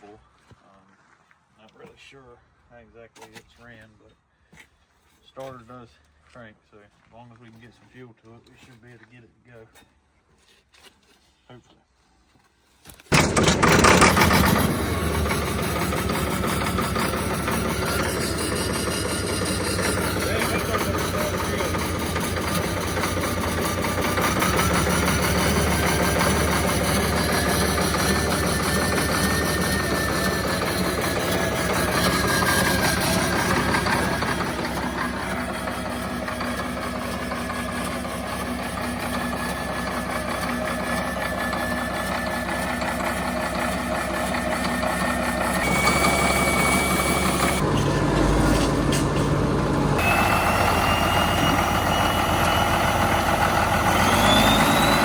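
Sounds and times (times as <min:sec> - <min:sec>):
bulldozer diesel engine running: 0:13.1 - 0:55.0
thin whine rising in pitch: 0:50.0 - 0:55.0.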